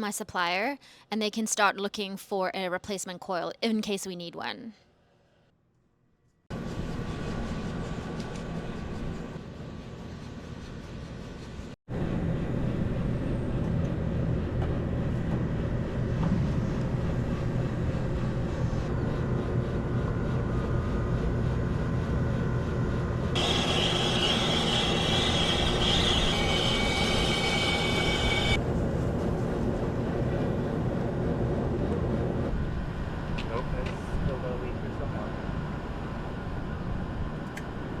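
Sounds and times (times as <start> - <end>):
mechanical drone with low hum: 6.5 - 38.0
loud hiss with high whistle: 23.4 - 28.6.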